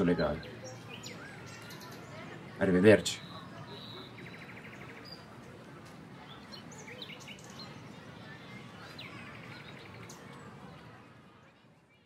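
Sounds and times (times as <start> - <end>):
low background noise: 0.0 - 12.0
faint bird chirps: 3.1 - 5.3.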